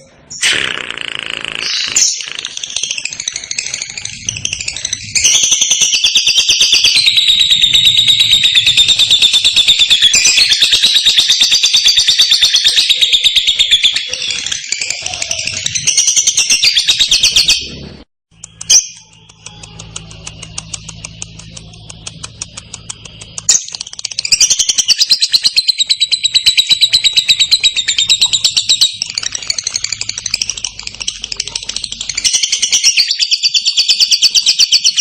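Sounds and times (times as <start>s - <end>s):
bird chirp: 1.5s - 35.0s.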